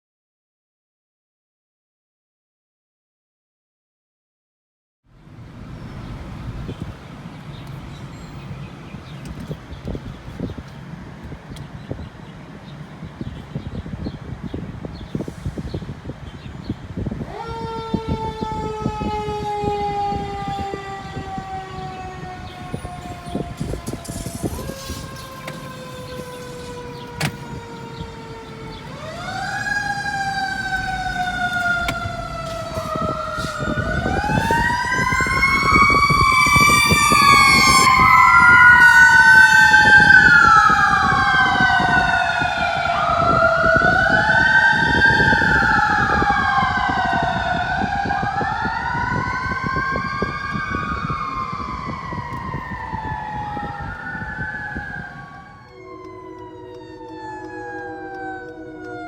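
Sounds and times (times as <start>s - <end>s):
engine and road rumble: 5.1s - 59.0s
fire truck sirens wailing: 13.8s - 59.0s.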